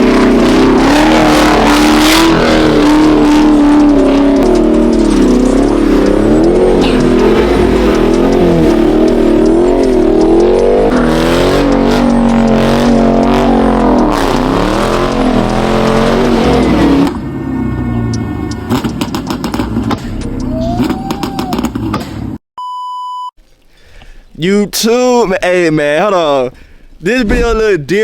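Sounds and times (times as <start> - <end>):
car engine revving hard: 0.0 - 17.4.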